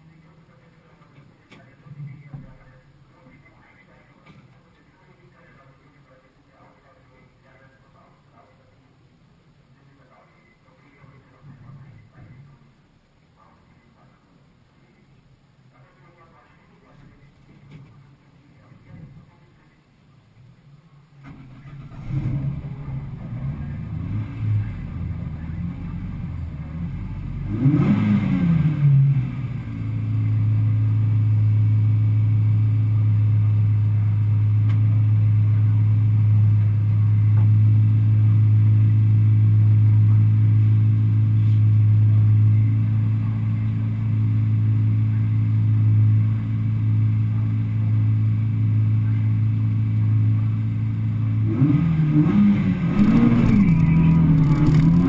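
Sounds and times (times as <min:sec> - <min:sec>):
car engine revving: 0:21.2 - 0:55.0.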